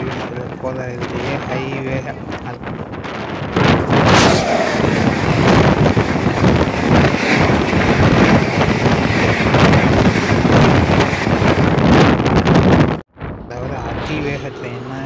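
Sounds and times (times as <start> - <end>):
wind and rail noise: 0.0 - 15.0
wind buffeting microphone: 0.0 - 15.0
train passing at speed: 3.1 - 12.1.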